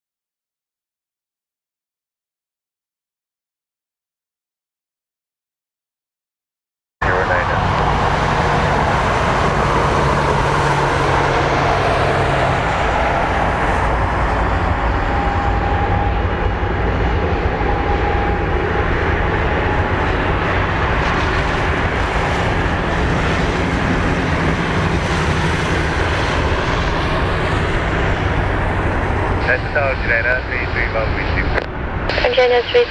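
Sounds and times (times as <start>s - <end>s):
jet engine roar: 7.0s - 32.9s.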